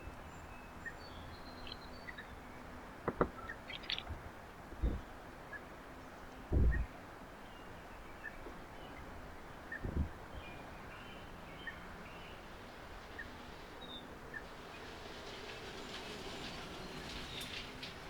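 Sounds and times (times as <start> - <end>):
outdoor background noise: 0.0 - 18.0
faint bird chirps: 3.3 - 4.1
low thump: 6.5 - 6.9.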